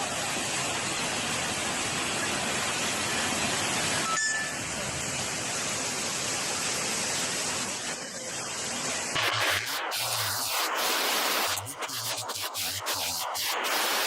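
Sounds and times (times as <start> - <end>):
water rushing: 9.2 - 14.0.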